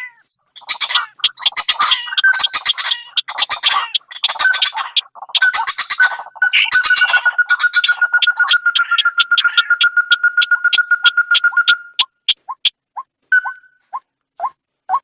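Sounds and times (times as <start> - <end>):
recorded bird calls chattering: 0.0 - 15.0
steady high tone: 6.4 - 12.3.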